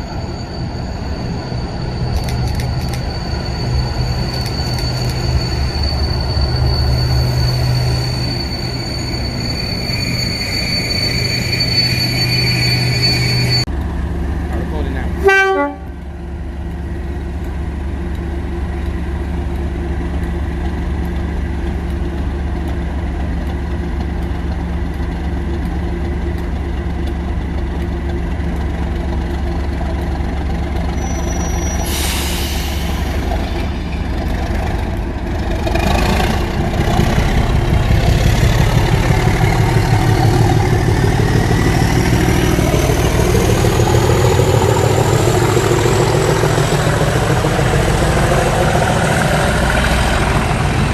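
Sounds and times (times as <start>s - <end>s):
turbocharger whistle: 0.0s - 13.7s
diesel locomotive engine running: 0.0s - 50.9s.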